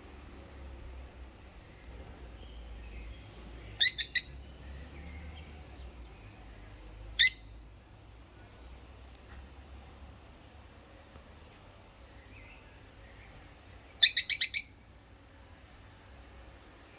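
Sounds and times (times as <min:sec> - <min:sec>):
lovebird chirping: 0:02.4 - 0:05.1, 0:07.2 - 0:07.6, 0:12.1 - 0:14.9.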